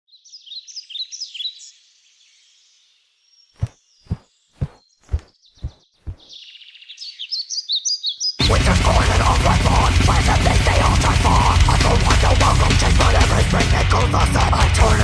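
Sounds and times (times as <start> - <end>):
songbirds chirping: 0.1 - 8.4.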